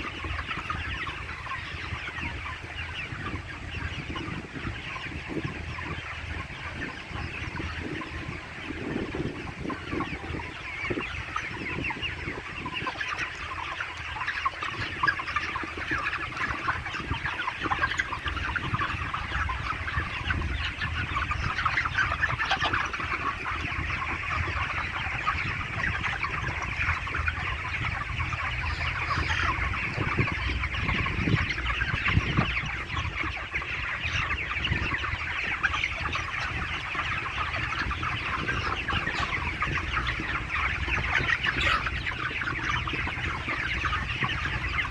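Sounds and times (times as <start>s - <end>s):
chickens clucking and cheeping: 0.0s - 44.9s.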